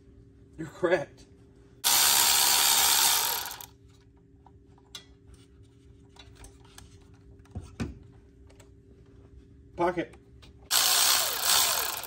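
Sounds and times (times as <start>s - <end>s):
hand tools clicking ratchet-like: 1.8s - 3.7s, 10.7s - 12.0s.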